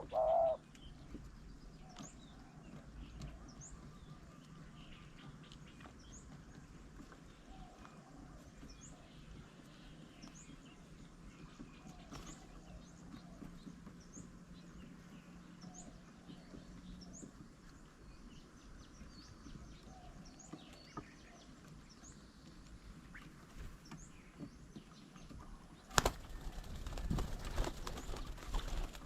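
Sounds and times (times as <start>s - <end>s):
small birds chirping: 0.0s - 29.0s
wings flapping and scuffling: 21.6s - 29.0s.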